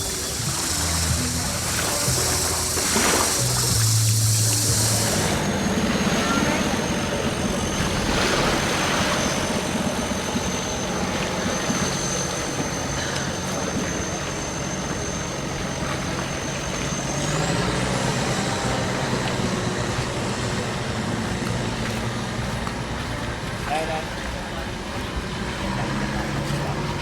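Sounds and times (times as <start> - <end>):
thin high whine: 0.0 - 24.0
engine running: 0.0 - 27.0.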